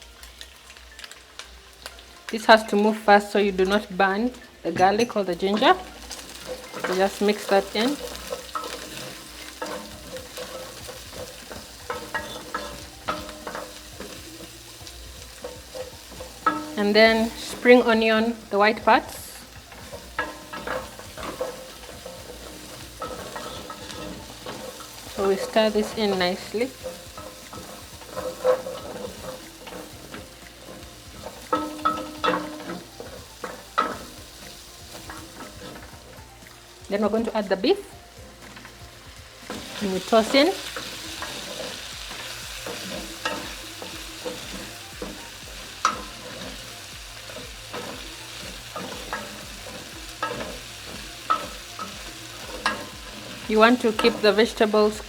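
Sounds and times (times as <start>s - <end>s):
food sizzling in hot oil: 0.0s - 55.0s
utensil scraping a pan: 1.9s - 55.0s.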